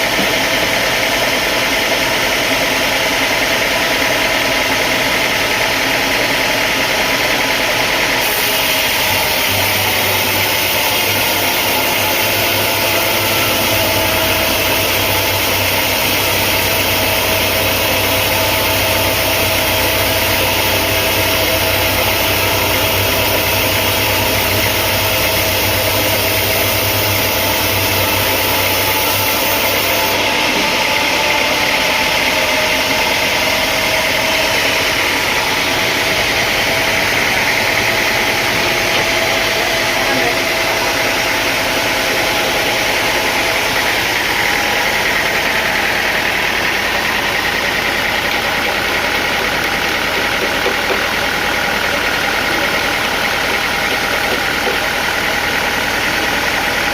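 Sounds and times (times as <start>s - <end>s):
sawmill machinery droning: 0.0s - 56.9s
deep hum: 12.2s - 47.2s.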